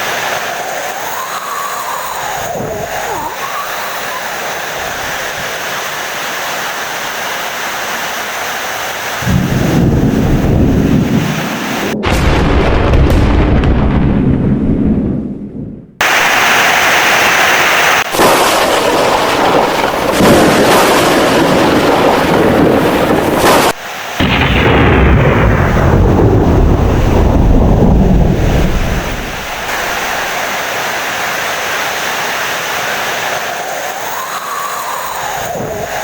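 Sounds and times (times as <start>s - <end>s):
heavy rain: 0.0s - 12.6s, 16.0s - 36.0s
loud thunder rumbling: 9.2s - 16.6s, 18.0s - 30.4s.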